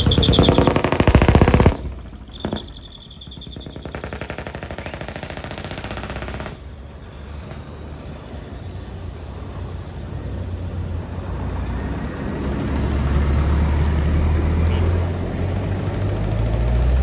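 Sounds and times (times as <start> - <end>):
fast rattling: 0.0 - 6.7
truck engine rumble: 0.0 - 17.0.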